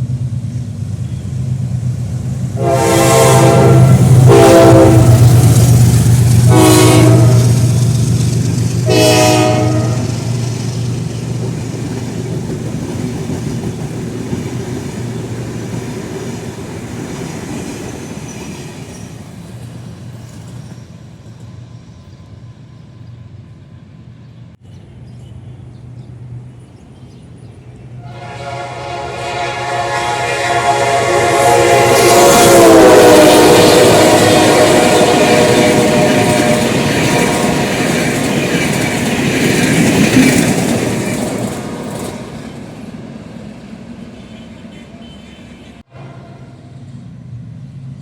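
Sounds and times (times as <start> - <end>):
train running noise: 0.0 - 48.0
locomotive horn blasts: 2.6 - 5.4, 6.5 - 7.7, 8.8 - 10.2, 28.0 - 38.0
locomotive engine drone: 20.9 - 43.7.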